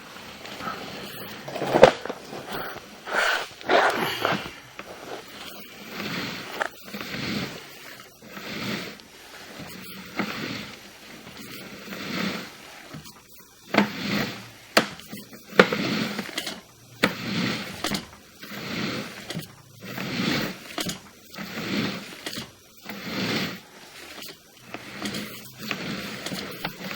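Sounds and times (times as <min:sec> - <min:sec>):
cable scraping in a pipe: 0:00.0 - 0:26.9.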